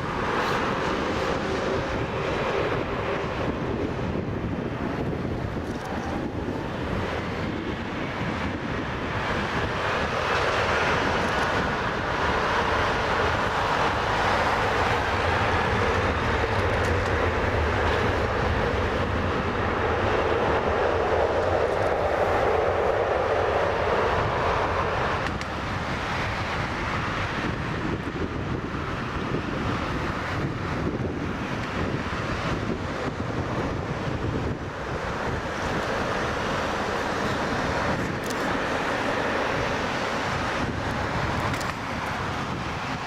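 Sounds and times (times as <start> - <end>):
jet airliner roar overhead: 0.0 - 43.0
jet engine whine sliding in pitch: 0.0 - 43.0.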